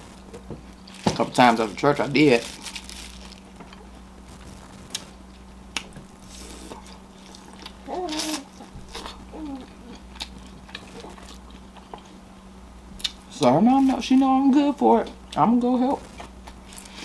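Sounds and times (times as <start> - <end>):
pitched hum-like mouth sound: 5.7 - 11.5
wet chewing: 5.7 - 12.2.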